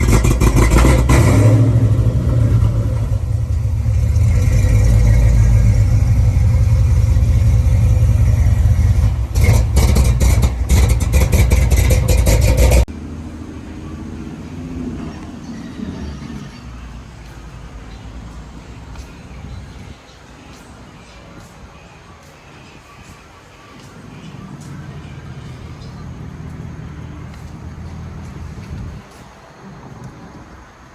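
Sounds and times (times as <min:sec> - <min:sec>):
exhaust crackling pops: 0:00.0 - 0:12.9
car engine revving: 0:00.0 - 0:20.0, 0:23.9 - 0:29.1.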